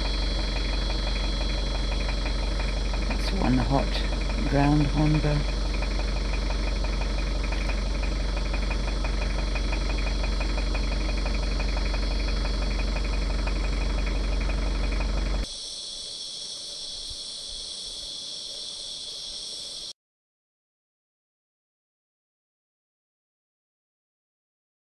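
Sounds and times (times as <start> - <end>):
vehicle engine idling: 0.0 - 15.6
insects shrilling: 0.0 - 19.9.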